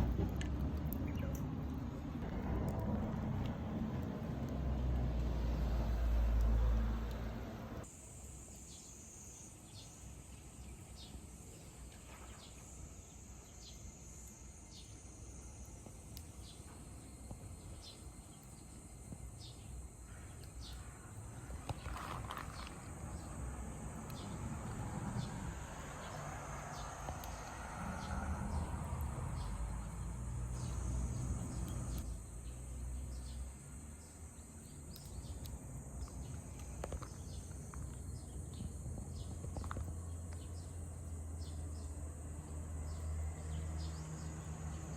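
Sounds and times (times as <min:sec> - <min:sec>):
low rumble: 0:00.0 - 0:07.8
insects chirring: 0:01.1 - 0:44.9.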